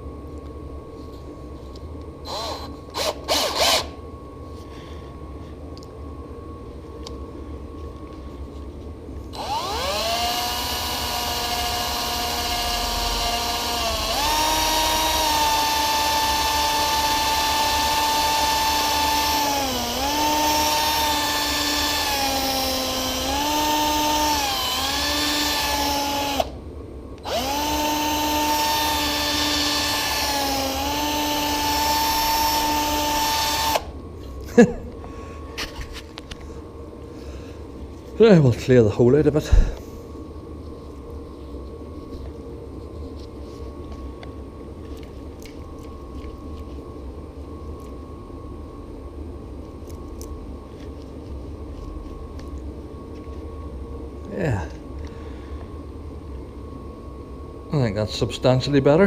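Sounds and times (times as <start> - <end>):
electric drill whining: 2.2 - 4.0, 9.3 - 26.6, 27.2 - 34.0.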